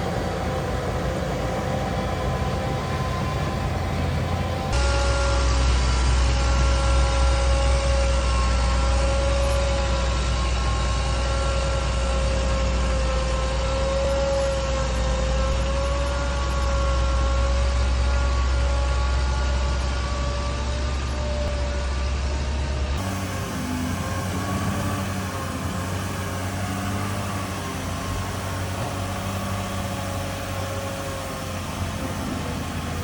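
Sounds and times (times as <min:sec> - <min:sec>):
diesel machinery engine rumble: 0:00.0 - 0:04.8, 0:05.4 - 0:33.0
machinery whine: 0:00.0 - 0:33.0.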